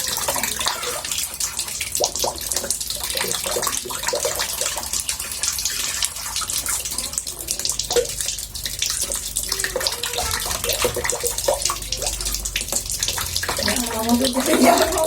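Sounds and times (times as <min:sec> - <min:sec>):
water splashing in a bathtub: 0:00.0 - 0:15.0.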